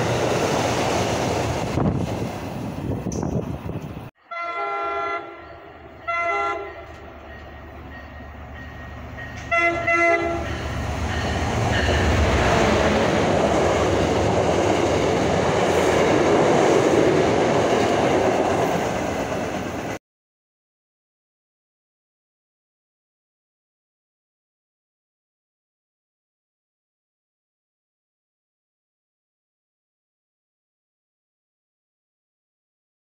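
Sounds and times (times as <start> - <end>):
locomotive horn blasts: 4.2 - 7.0, 9.3 - 12.2.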